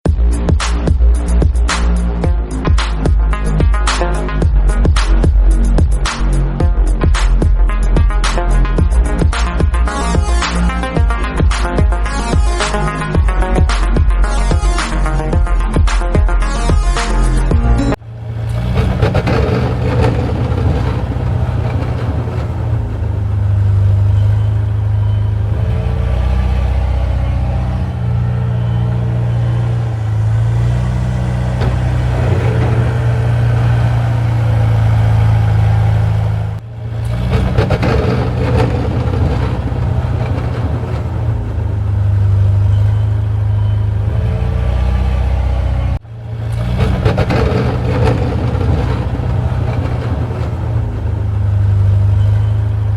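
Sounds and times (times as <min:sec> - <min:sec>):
engine droning: 0:17.2 - 0:52.9.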